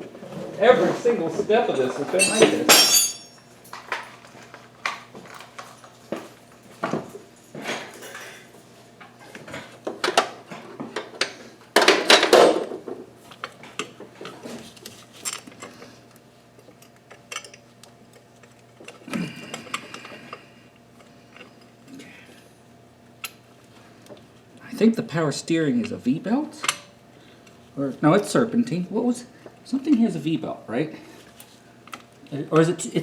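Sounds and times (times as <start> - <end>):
metal hand tools clinking: 2.2 - 3.4
ringing metallic clink: 2.2 - 3.4.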